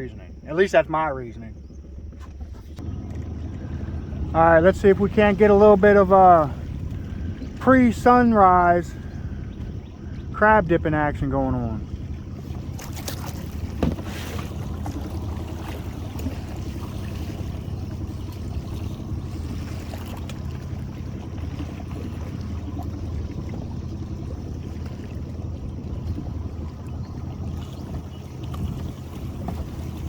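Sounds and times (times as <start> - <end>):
boat motor running: 0.0 - 30.0
short knock: 13.8 - 14.1.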